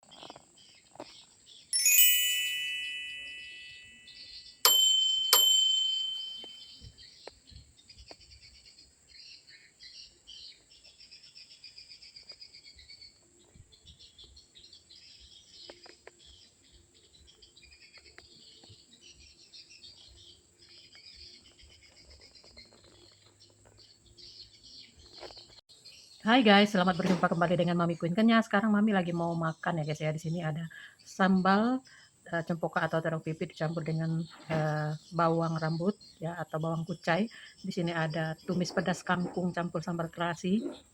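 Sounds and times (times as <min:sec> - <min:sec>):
birds chirping: 0:00.0 - 0:40.9
chime ringing: 0:01.8 - 0:06.9.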